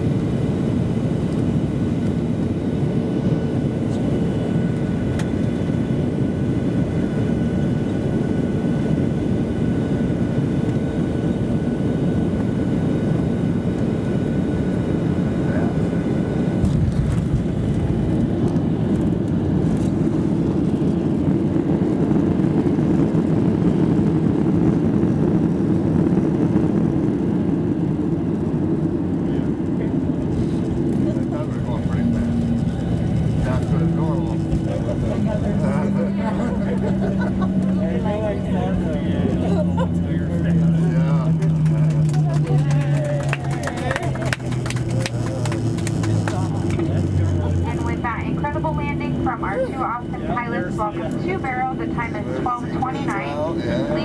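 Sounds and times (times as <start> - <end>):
aircraft cabin engine rush: 0.0 - 54.0
engine rumble braking: 30.2 - 48.0.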